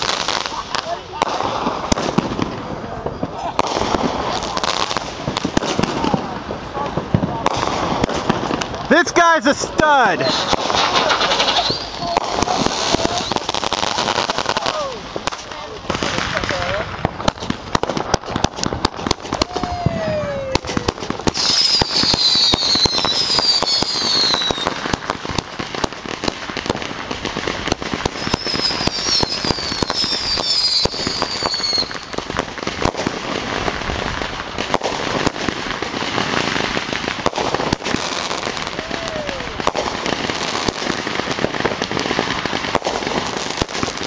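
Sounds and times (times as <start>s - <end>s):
fireworks popping and crackling: 0.0s - 44.0s
fireworks whistles falling in pitch: 9.4s - 14.1s, 19.3s - 24.9s, 28.0s - 32.2s.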